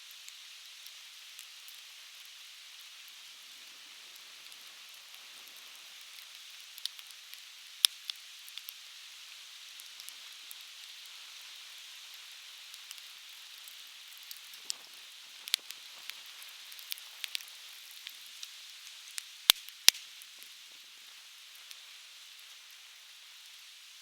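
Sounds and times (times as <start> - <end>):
campfire crackling and popping: 3.0 - 8.9, 9.6 - 11.2, 12.1 - 20.9, 21.5 - 22.8.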